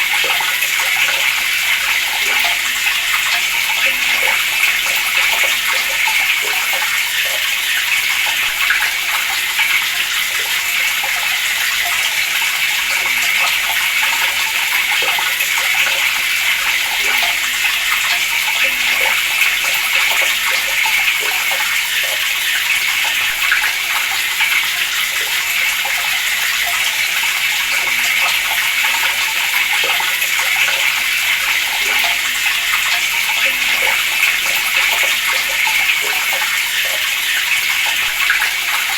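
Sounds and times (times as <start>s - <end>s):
water running from a tap: 0.0s - 38.9s.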